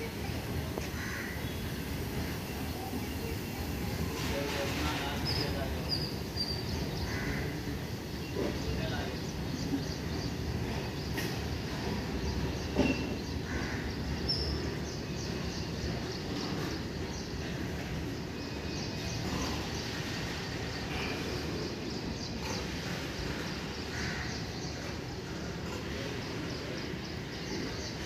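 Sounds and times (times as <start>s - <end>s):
freight train rumbling: 0.0s - 28.0s.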